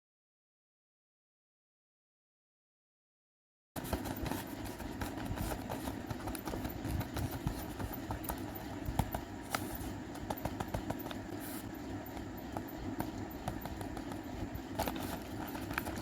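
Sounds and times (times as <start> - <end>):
paper and tape crinkling: 13.4 - 16.0.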